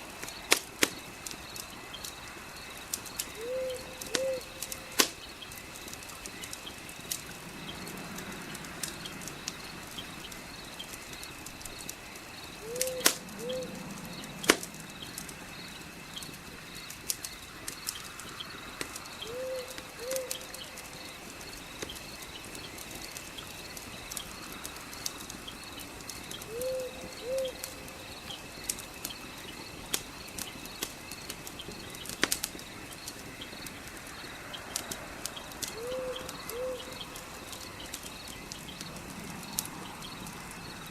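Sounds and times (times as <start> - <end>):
fireplace crackling and popping: 0.0 - 40.9
night insects trilling: 0.0 - 40.9
bird hooting: 3.4 - 5.0, 12.6 - 13.9, 19.2 - 20.5, 26.5 - 27.6, 35.8 - 37.0.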